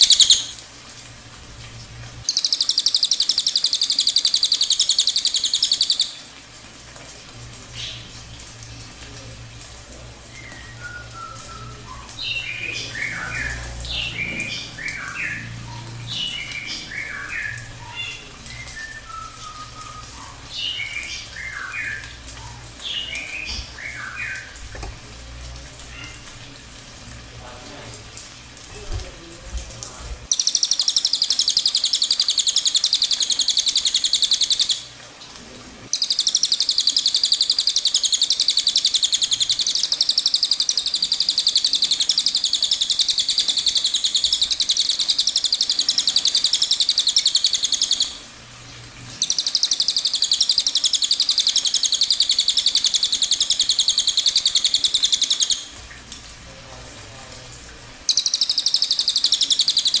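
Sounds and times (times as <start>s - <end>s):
songbird trilling: 0.0s - 0.6s, 2.3s - 6.2s, 10.3s - 24.6s, 30.3s - 34.8s, 36.0s - 48.2s, 49.2s - 55.7s, 58.1s - 60.0s.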